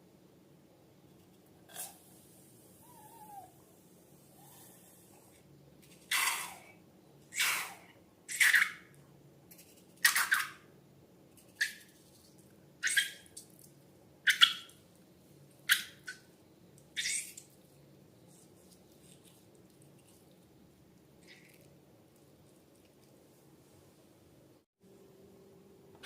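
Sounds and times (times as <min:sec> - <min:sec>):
squeaky slime squelches: 0:12.8 - 0:13.4, 0:16.9 - 0:17.6.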